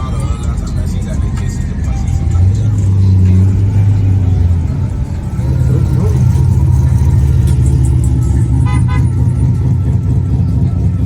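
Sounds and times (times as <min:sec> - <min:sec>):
car engine and exhaust rumble: 0:00.0 - 0:11.0.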